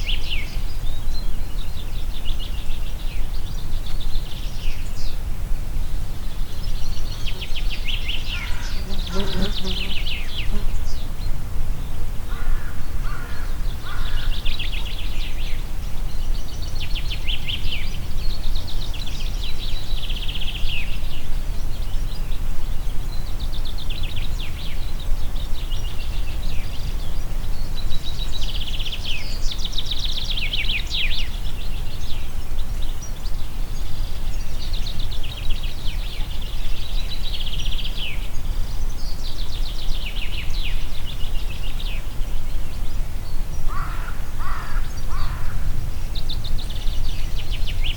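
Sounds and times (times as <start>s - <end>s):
songbird singing: 0.0s - 47.9s
wind blowing through forest: 0.0s - 47.9s.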